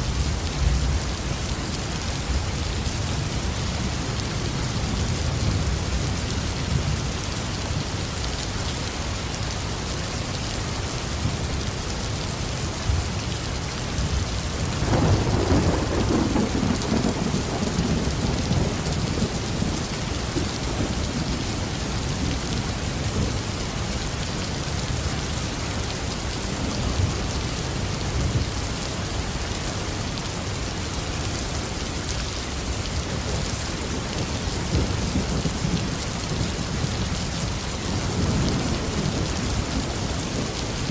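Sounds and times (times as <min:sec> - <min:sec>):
heavy rain on a roof: 0:00.0 - 0:40.9
thunder rumbling: 0:14.6 - 0:23.3.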